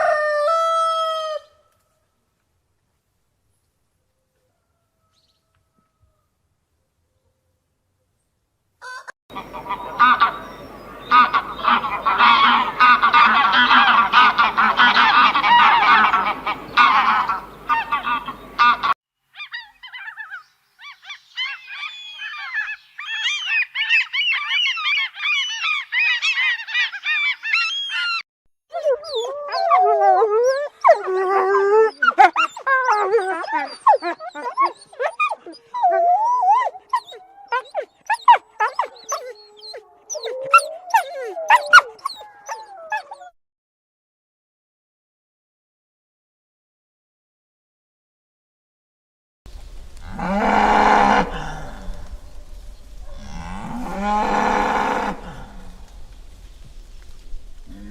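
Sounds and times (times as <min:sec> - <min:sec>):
flock of farm animals calling: 0:08.8 - 0:28.2, 0:30.9 - 0:43.3, 0:50.0 - 0:56.1
low wavering animal calls: 0:08.9 - 0:43.4, 0:50.0 - 0:56.4
high chirping calls: 0:19.4 - 0:28.2.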